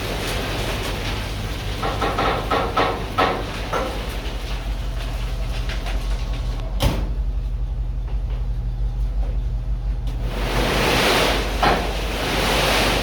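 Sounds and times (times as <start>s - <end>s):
truck engine humming: 0.0s - 13.0s.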